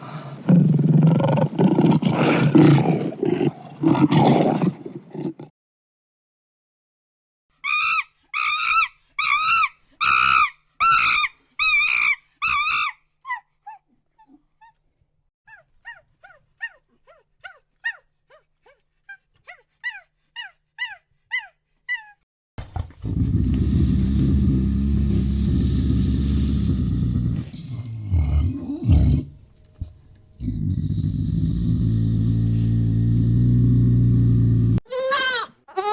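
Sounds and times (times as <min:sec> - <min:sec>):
animal yelping: 0:07.6 - 0:14.8.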